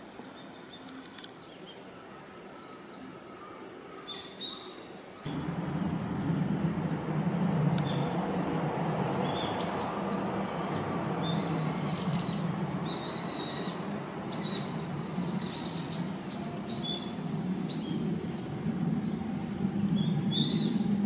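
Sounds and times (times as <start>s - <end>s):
low background hum: 5.3s - 21.0s
bird chirping: 7.8s - 20.9s.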